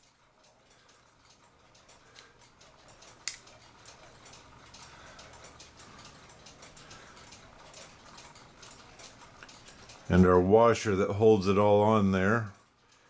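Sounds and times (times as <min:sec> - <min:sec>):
small metal tool clicks: 0:03.2 - 0:03.6.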